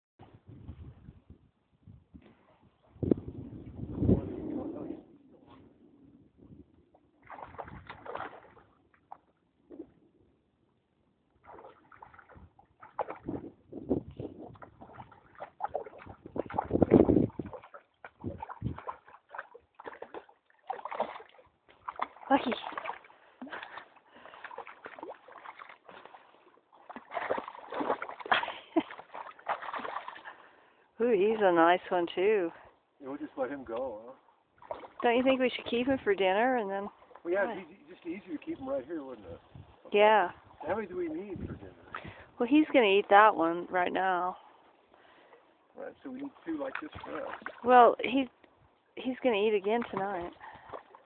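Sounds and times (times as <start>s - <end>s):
dog splashing through water: 7.2s - 9.3s, 11.4s - 13.6s, 14.2s - 30.4s, 34.6s - 36.1s, 46.4s - 47.9s, 49.6s - 51.0s.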